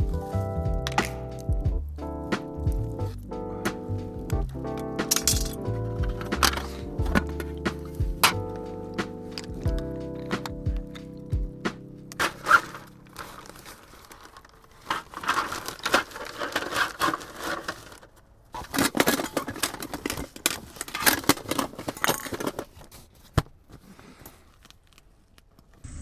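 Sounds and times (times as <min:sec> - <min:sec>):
material crinkling and rustling: 0:12.1 - 0:25.8.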